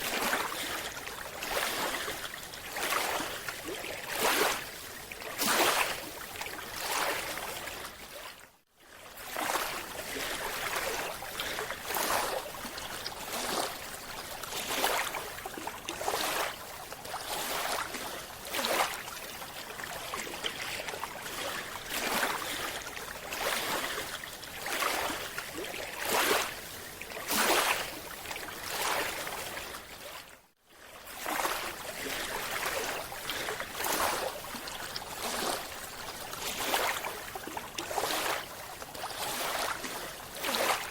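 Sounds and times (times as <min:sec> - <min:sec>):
water sloshing and swishing: 0:00.0 - 0:40.9.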